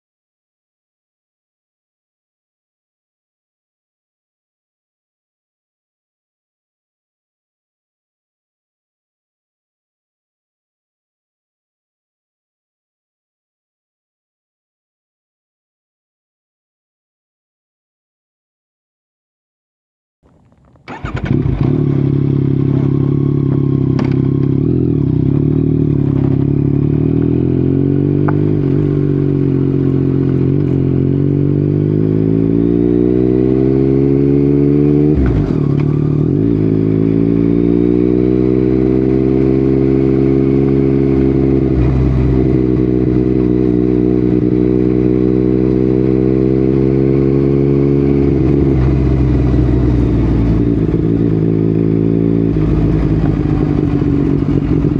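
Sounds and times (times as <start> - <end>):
motorcycle engine while riding: 20.3 - 54.9.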